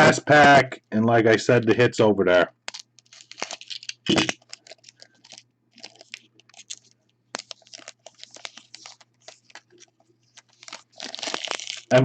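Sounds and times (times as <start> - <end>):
plastic wrapper crinkling: 2.6 - 12.0.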